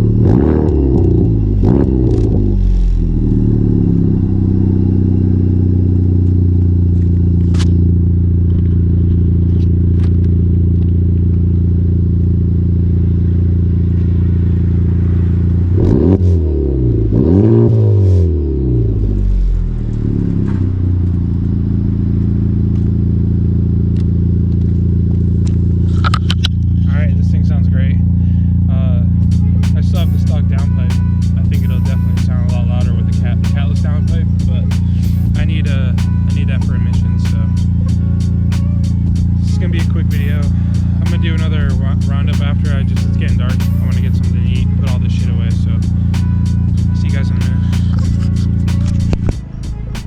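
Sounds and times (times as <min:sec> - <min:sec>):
car engine idling: 0:00.0 - 0:50.0
throttle blips: 0:29.2 - 0:50.0.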